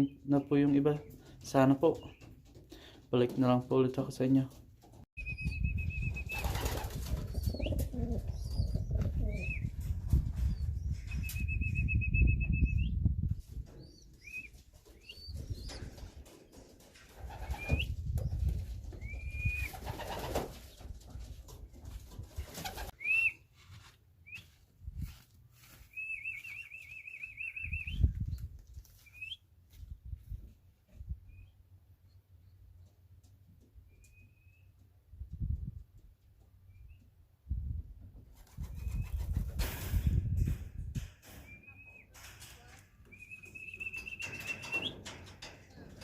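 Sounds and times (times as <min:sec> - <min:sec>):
pigeon wings flapping: 0:06.1 - 0:08.3, 0:14.4 - 0:23.0
high whistled chirps: 0:25.9 - 0:28.1, 0:43.1 - 0:45.0
wavering trilled whistles: 0:43.1 - 0:45.0.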